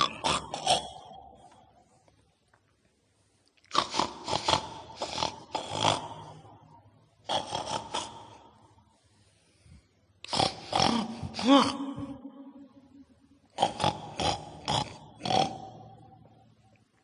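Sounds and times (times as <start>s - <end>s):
pig-like grunting and snorting: 0.0s - 1.6s, 3.7s - 8.7s, 10.2s - 12.3s, 13.5s - 16.2s.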